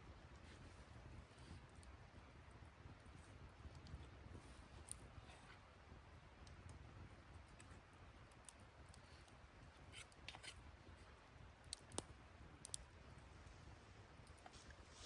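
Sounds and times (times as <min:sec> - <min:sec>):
faint sharp clicks: 0:11.6 - 0:13.0.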